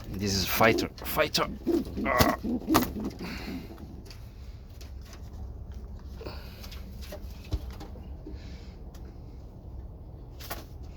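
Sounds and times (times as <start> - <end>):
low steady rumble: 0.0 - 10.9
pigeons cooing: 0.2 - 4.1.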